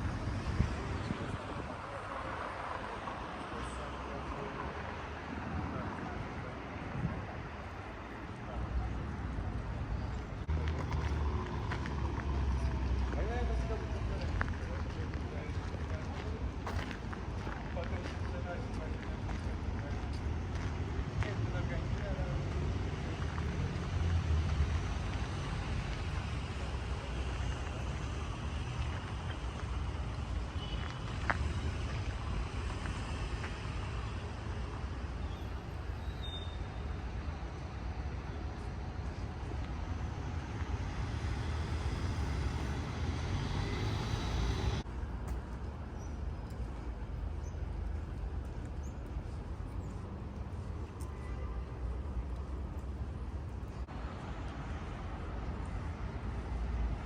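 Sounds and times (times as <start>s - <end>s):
road traffic rumble: 0.0s - 57.0s
urban noise: 0.0s - 57.0s.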